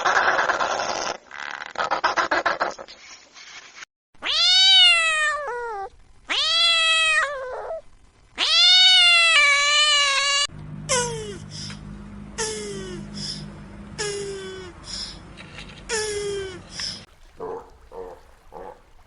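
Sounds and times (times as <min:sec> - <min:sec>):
long animal cries: 0:04.2 - 0:07.8, 0:08.4 - 0:11.8
rushing noise: 0:10.5 - 0:17.1.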